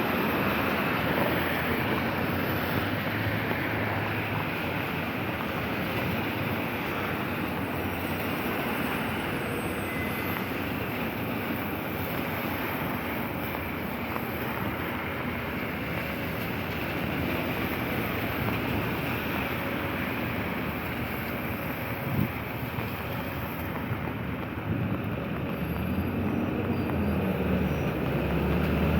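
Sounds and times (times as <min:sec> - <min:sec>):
rainy street hiss: 0:00.0 - 0:28.9.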